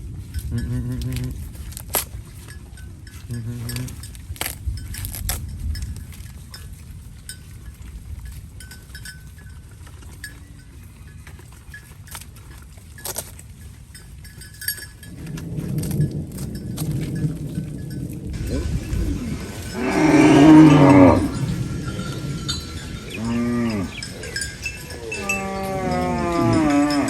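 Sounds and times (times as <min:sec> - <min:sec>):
leaves torn and chewed: 0:00.0 - 0:27.0
cow mooing: 0:00.5 - 0:01.4, 0:03.3 - 0:04.0, 0:18.4 - 0:27.0.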